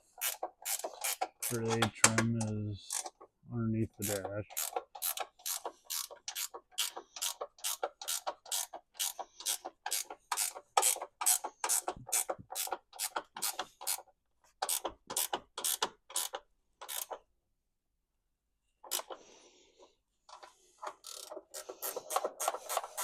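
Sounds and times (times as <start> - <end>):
ratchet wrench clicking: 0.2 - 1.8, 4.0 - 14.0, 14.6 - 17.2, 20.8 - 23.0.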